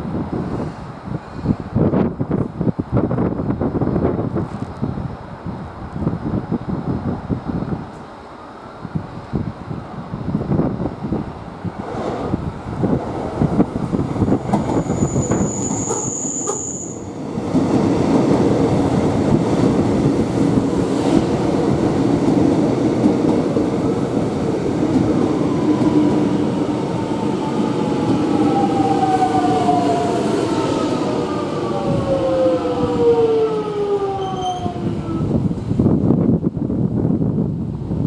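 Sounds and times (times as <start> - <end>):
electric train rumbling: 0.0 - 38.0
high-pitched train squeal: 14.6 - 17.2, 27.5 - 35.4.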